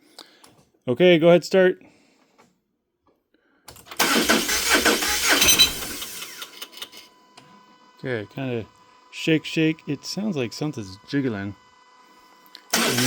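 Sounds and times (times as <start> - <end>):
starter cranking engine: 3.7 - 7.0, 12.7 - 13.0.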